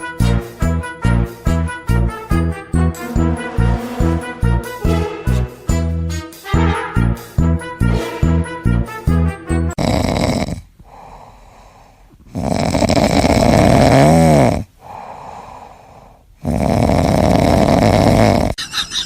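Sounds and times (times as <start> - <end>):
pet snoring loudly: 9.8 - 10.7, 12.3 - 14.7, 16.4 - 18.6
quiet breaths: 10.2 - 13.7, 14.6 - 18.5.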